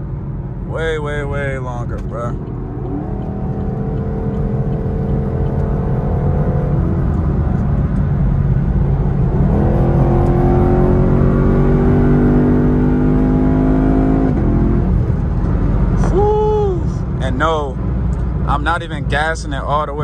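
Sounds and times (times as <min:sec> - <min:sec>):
car engine hard acceleration: 0:00.0 - 0:20.0
gear change: 0:01.3 - 0:17.2.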